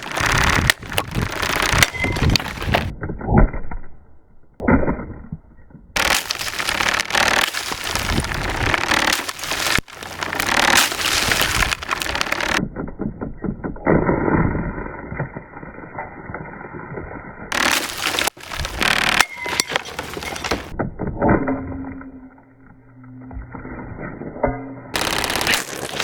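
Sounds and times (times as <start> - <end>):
plastic cracking and crunching: 0.0 - 2.9, 6.0 - 12.6, 17.5 - 20.8, 25.0 - 26.0.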